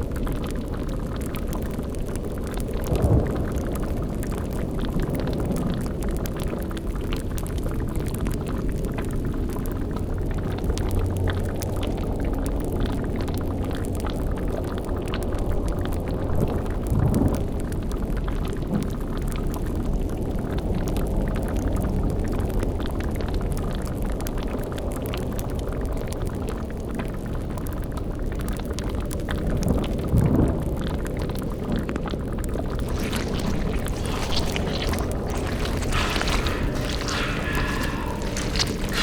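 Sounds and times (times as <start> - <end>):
deep rumbling drone: 32.7 - 39.0
faint crackling: 32.7 - 39.0.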